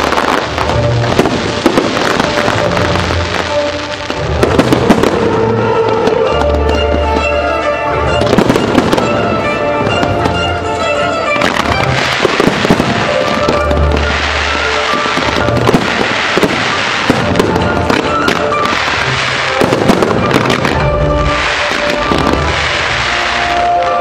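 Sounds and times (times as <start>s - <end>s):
fireworks cracks and pops: 0.0s - 5.3s, 11.4s - 24.0s
music soundtrack: 0.0s - 24.0s.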